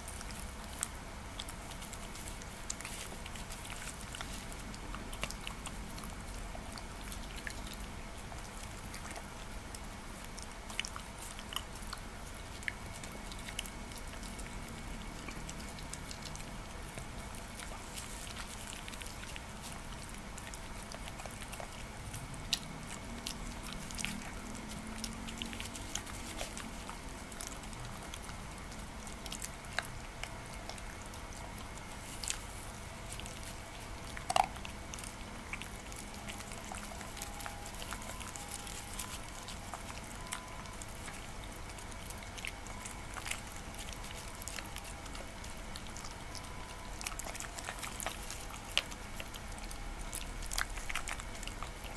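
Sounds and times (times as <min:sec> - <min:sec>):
dog chewing soft food: 0:00.0 - 0:51.9
low background hum: 0:00.0 - 0:51.9
teeth clicking: 0:34.1 - 0:51.9.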